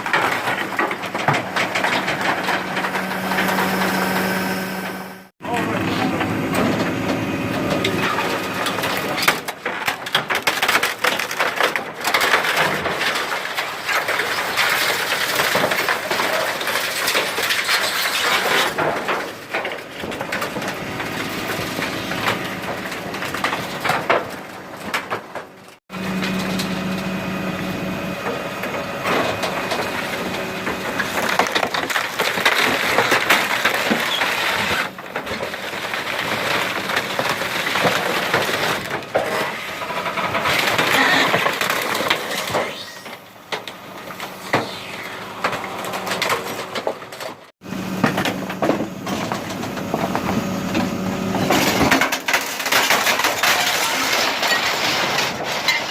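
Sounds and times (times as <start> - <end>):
wooden furniture cracking and splintering: 0.0 - 4.4, 6.5 - 26.6, 28.8 - 50.4, 51.0 - 55.9
truck hum: 0.0 - 9.8, 20.1 - 52.1.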